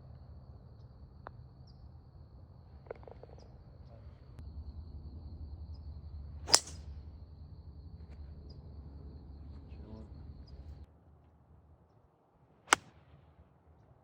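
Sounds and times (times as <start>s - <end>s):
golf club striking ball: 6.5s - 6.9s.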